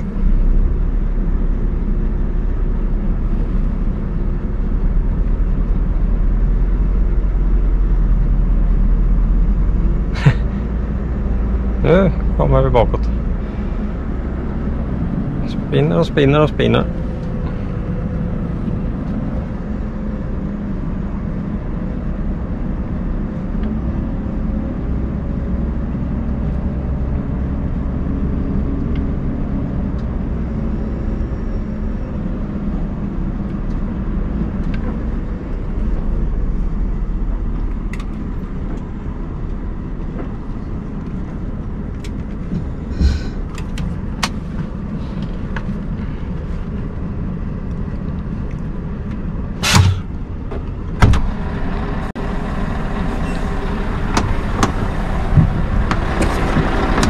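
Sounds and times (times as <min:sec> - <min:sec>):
truck diesel engine under load: 0:00.0 - 0:57.0.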